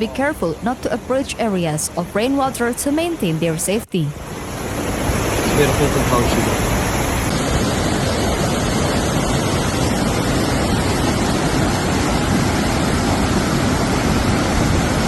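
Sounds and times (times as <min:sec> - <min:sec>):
floodwater rushing: 0:04.2 - 0:15.0.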